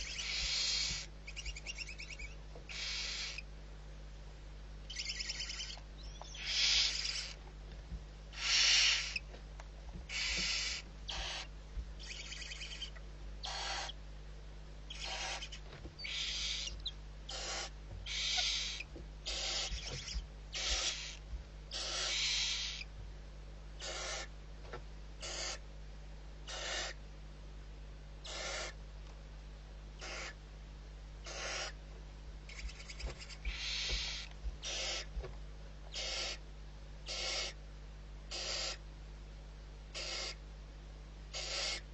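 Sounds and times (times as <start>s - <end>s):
barn owl hissing: 0.0s - 3.5s, 4.9s - 7.4s, 8.3s - 9.2s, 10.1s - 14.0s, 14.9s - 22.9s, 23.8s - 24.3s, 25.2s - 25.6s, 26.5s - 27.0s, 28.2s - 28.8s, 30.0s - 30.4s, 31.2s - 31.8s, 32.5s - 35.1s, 35.9s - 36.4s, 37.0s - 37.6s, 38.3s - 38.8s, 39.9s - 40.4s, 41.3s - 41.9s.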